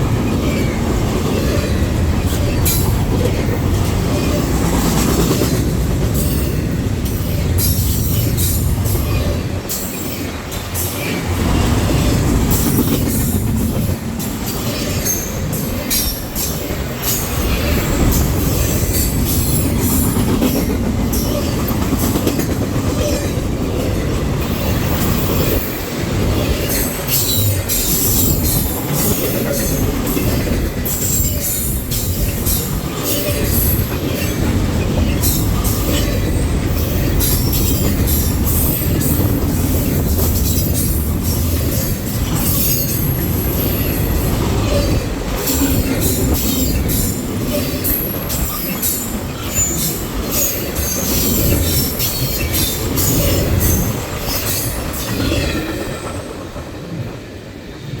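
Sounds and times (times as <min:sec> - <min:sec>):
wheels clicking over rail joints: 0:00.0 - 0:57.1
freight train rumbling: 0:00.0 - 0:58.0.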